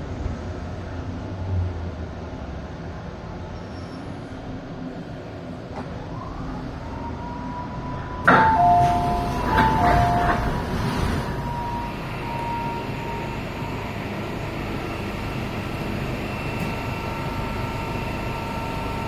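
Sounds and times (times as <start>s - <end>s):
train running rumble: 8.0s - 19.0s
door-closing chime: 8.3s - 12.8s.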